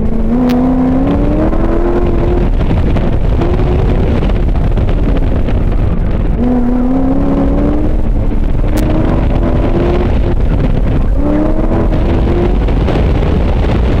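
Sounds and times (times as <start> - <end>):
car engine accelerating hard: 0.0 - 14.0
road rumble: 0.0 - 14.0
wind on microphone: 0.0 - 14.0.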